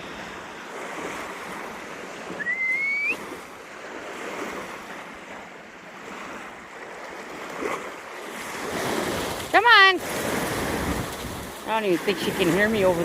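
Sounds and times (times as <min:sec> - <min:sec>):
ocean waves breaking on shore: 0:00.0 - 0:13.0
short rising whistle: 0:02.4 - 0:03.3
wind on microphone: 0:07.3 - 0:13.0.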